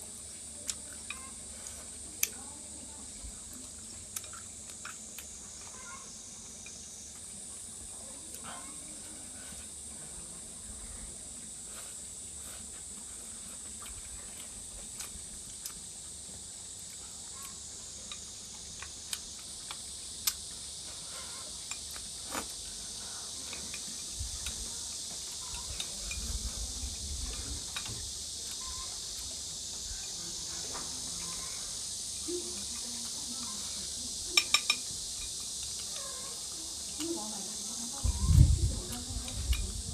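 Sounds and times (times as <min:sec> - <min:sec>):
steady high hiss: 0:00.0 - 0:39.9
chopsticks and tableware clicking: 0:04.1 - 0:05.3, 0:34.4 - 0:36.2.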